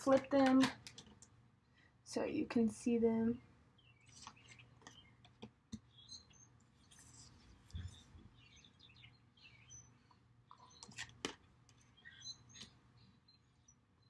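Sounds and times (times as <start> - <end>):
faint bird chirps: 3.7 - 5.2, 5.8 - 11.0, 11.8 - 14.0.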